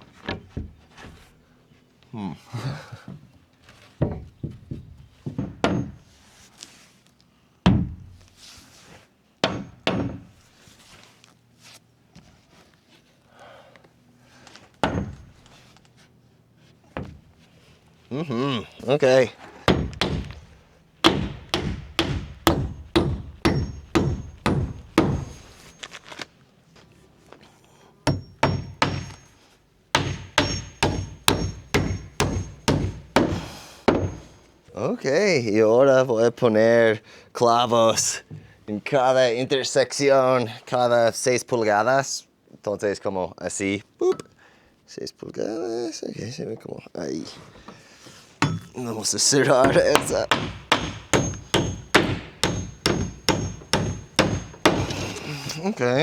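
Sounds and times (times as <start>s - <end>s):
hammer knocking on wood: 4.0s - 6.0s, 9.4s - 10.3s, 14.8s - 15.4s, 19.7s - 25.5s, 28.1s - 29.2s, 29.9s - 34.3s, 48.4s - 48.8s, 49.5s - 55.2s.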